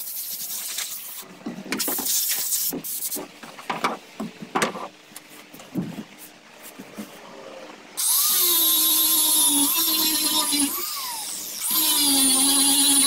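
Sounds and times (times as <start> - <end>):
power grinder on fiberglass: 8.0 - 13.0.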